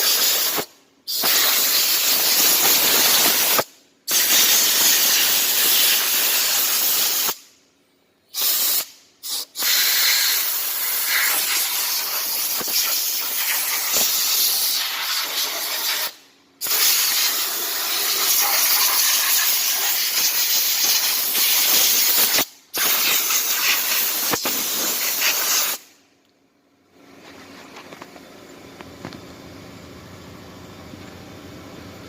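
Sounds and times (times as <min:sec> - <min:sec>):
pressure washer spraying: 0:00.0 - 0:07.4, 0:08.4 - 0:25.9.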